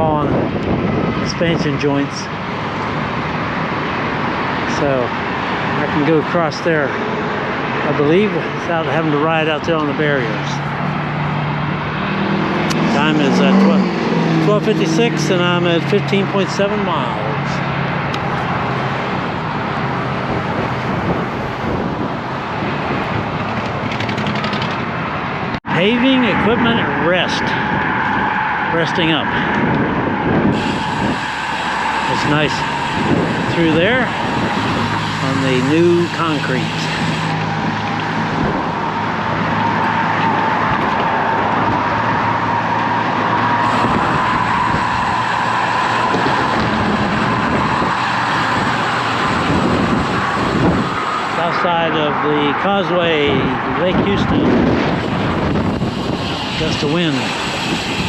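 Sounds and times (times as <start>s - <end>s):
road noise: 0.0s - 58.0s
wind rushing on microphone: 0.0s - 58.0s.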